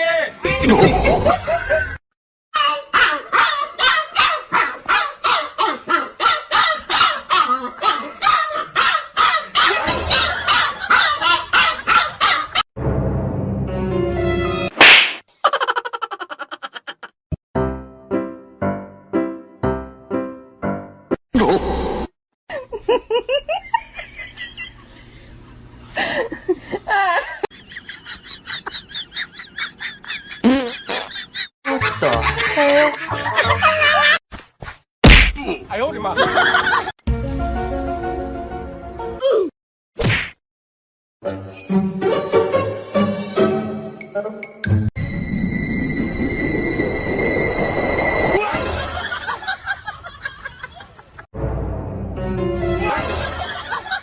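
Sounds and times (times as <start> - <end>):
dog barking: 3.0 - 9.9
laughter in quick bursts: 15.3 - 17.2, 25.9 - 34.2.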